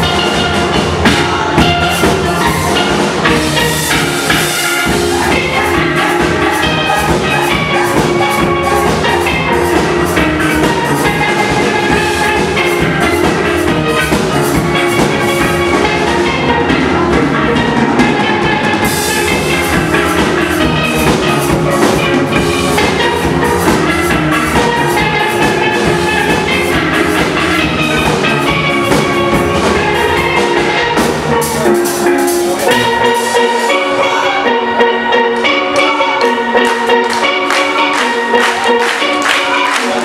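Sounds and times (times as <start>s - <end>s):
steady drum beat: 0.0s - 34.0s
steel drum band playing: 0.0s - 40.0s.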